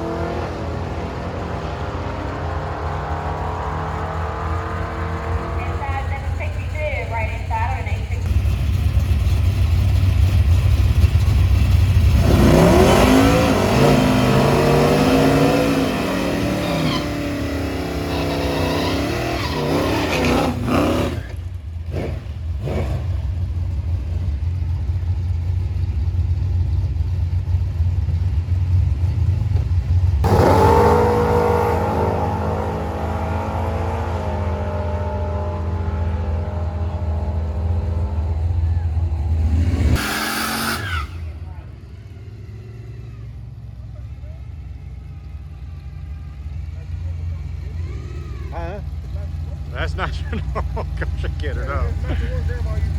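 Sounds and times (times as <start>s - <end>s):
deep engine rumble: 0.0s - 52.9s
engine running: 0.0s - 52.9s
racing engine revving hard: 12.0s - 23.2s, 30.2s - 41.4s, 49.8s - 52.9s.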